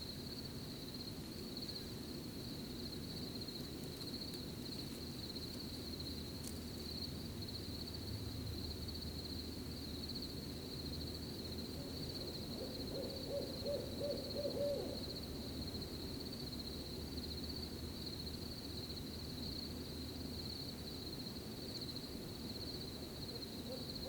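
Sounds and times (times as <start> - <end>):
crickets chirping: 0.0 - 24.0
owl hooting: 11.8 - 15.1, 23.6 - 24.0.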